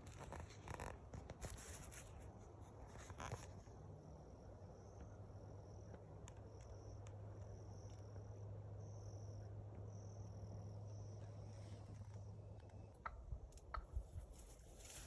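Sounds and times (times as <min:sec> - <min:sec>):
low hum: 0:03.5 - 0:15.0.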